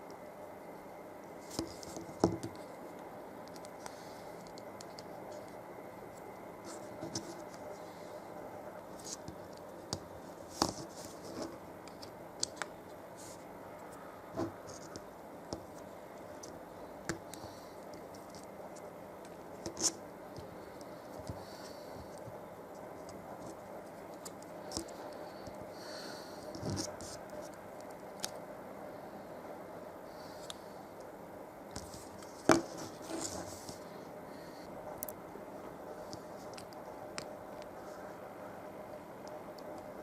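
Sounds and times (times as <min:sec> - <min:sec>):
faint hum: 0:00.0 - 0:40.0.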